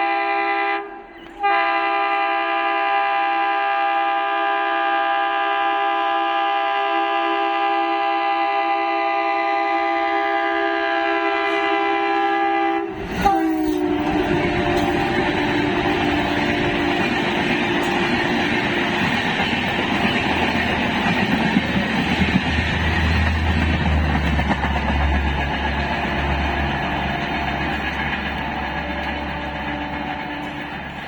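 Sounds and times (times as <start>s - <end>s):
locomotive horn: 0.0s - 21.1s, 23.0s - 31.0s
train rumbling on rails: 8.2s - 31.0s.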